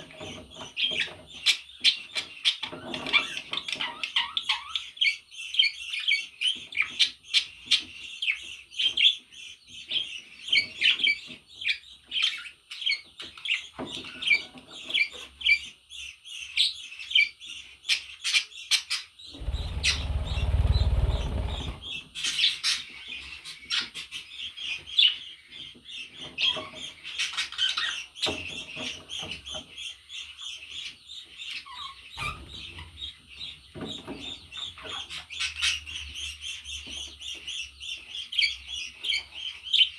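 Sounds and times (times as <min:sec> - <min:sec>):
low rumble: 0:19.4 - 0:21.9.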